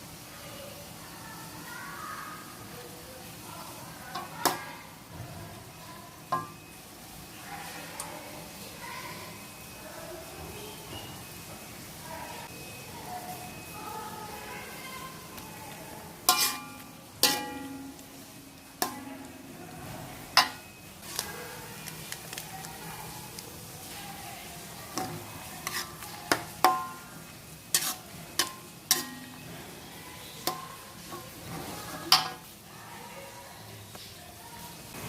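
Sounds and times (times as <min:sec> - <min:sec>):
metal utensil stirring in a pot: 0:04.1 - 0:05.1, 0:06.2 - 0:06.8, 0:16.1 - 0:19.6, 0:20.2 - 0:22.4, 0:23.8 - 0:32.6
utensil clinking on pot rim: 0:16.3 - 0:18.0.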